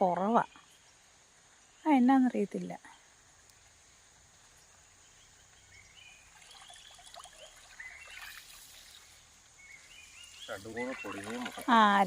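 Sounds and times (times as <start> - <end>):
bird chirping: 0.0 - 12.0
insect drone: 0.0 - 12.0
river water trickling: 3.1 - 12.0.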